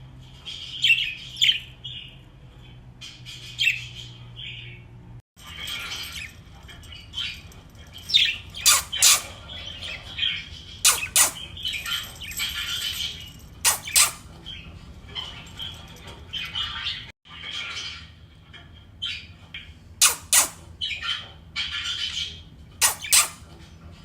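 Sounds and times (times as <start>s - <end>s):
budgerigars chattering and warbling: 8.1s - 11.5s, 13.7s - 14.2s, 20.0s - 23.4s
loud sharp chirps: 8.6s - 9.3s, 10.9s - 11.5s, 13.7s - 14.2s, 20.0s - 20.6s, 22.8s - 23.4s.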